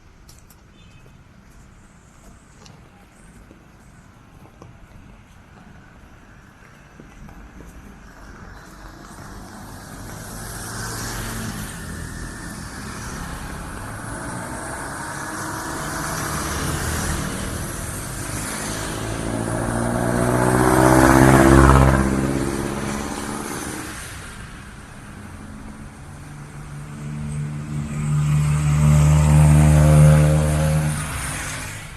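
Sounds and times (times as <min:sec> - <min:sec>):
motor vehicle passing: 0:08.2 - 0:31.9.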